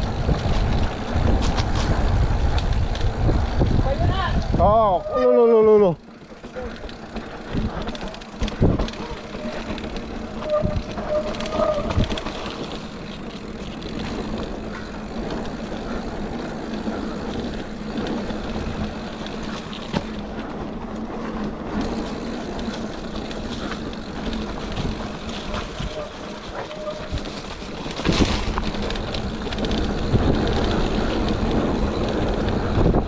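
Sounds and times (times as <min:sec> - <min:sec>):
wind on microphone: 0:00.0 - 0:05.1, 0:10.3 - 0:12.3, 0:23.6 - 0:33.0
bike rattling over bumps: 0:00.0 - 0:33.0
bike tyres rolling on dirt: 0:00.0 - 0:33.0.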